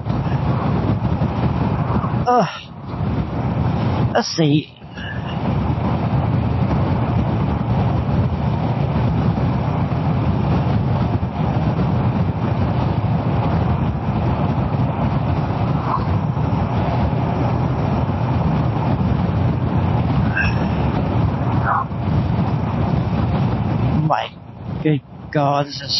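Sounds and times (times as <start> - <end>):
motorcycle engine riding: 0.0 - 4.2, 5.0 - 25.9
wind and road noise: 0.0 - 25.9.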